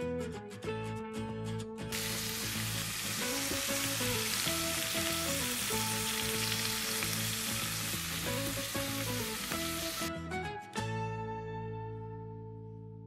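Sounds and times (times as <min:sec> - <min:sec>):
background music: 0:00.0 - 0:13.0
meat sizzling in a pot: 0:01.9 - 0:10.1.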